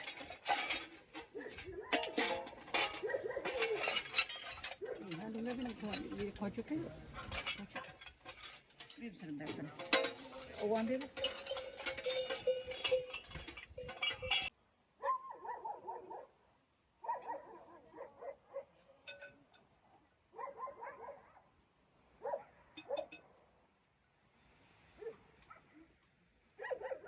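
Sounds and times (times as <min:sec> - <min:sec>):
dense clattering and rattling: 0:00.0 - 0:14.5.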